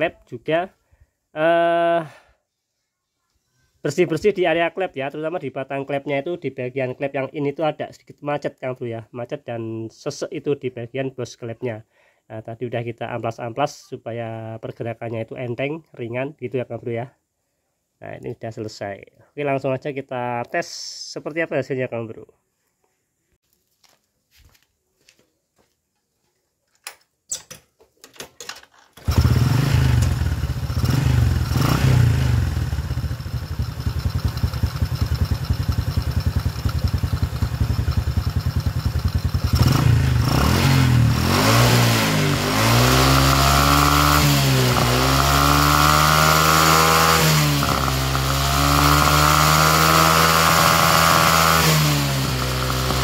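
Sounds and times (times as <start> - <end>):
motorcycle engine starting and revving: 29.0 - 53.0.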